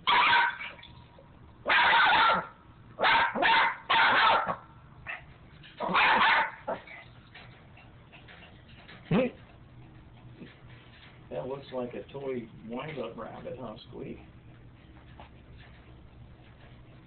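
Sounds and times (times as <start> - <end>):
small dog barking: 0.0 - 0.8, 1.6 - 6.9.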